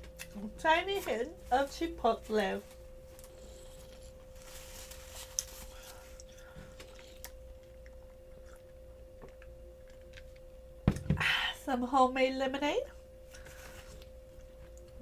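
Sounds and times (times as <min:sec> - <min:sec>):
faint steady hum: 0:00.0 - 0:15.0
chewing food: 0:06.1 - 0:10.4.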